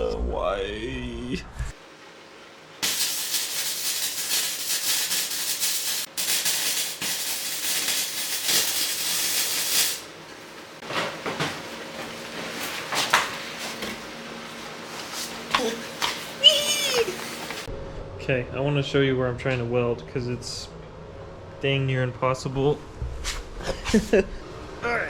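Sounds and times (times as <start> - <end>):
welding arc hissing and crackling: 2.8 - 10.8, 11.6 - 17.7.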